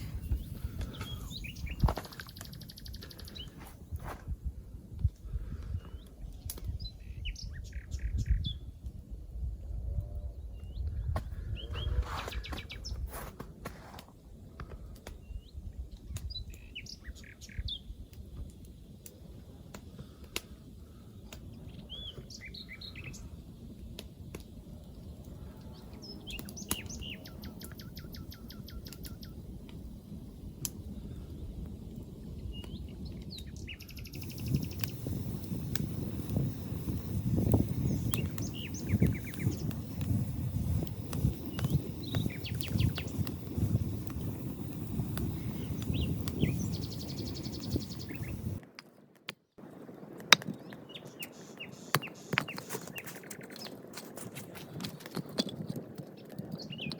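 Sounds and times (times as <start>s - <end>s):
bird trill: 0.0s - 3.6s
songbirds chirping: 0.0s - 4.1s, 20.0s - 48.6s, 50.0s - 53.9s
low outdoor background: 0.0s - 56.9s.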